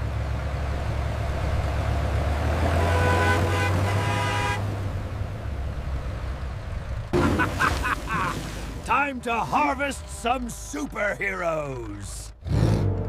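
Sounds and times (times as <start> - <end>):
tractor engine rumbling: 0.0 - 13.0
horn blaring: 2.6 - 4.7.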